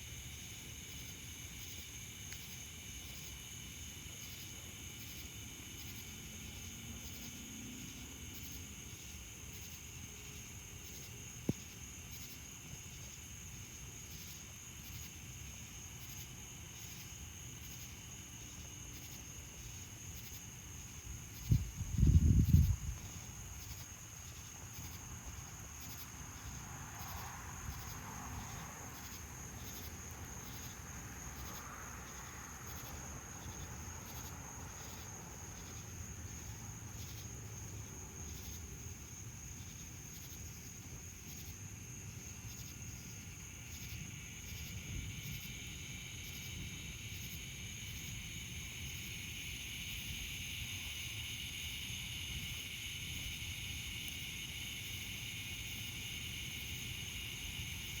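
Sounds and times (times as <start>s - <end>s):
cicadas buzzing: 0.0s - 58.0s.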